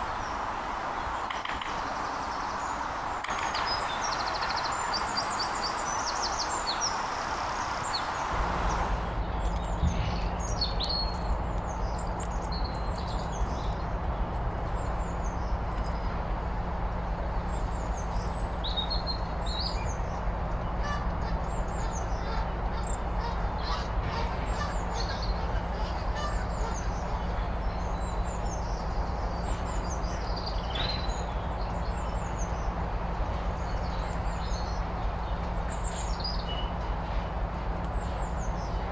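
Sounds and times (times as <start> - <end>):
songbirds chirping and singing: 0.0 - 9.6.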